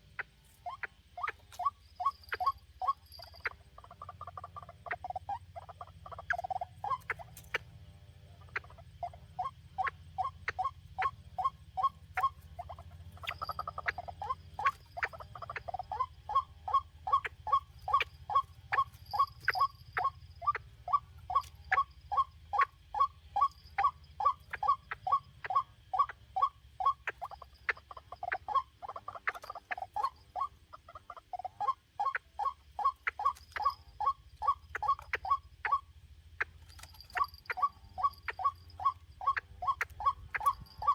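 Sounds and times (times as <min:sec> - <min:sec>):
waterhen calling: 0:00.0 - 0:07.7, 0:08.4 - 0:40.9.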